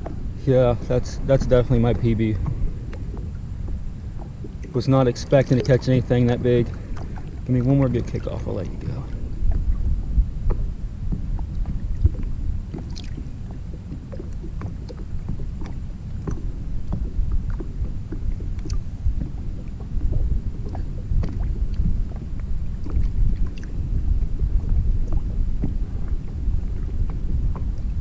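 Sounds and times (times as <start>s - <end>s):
wind buffeting microphone: 0.0s - 28.0s
faint light ticks and taps: 10.4s - 23.7s.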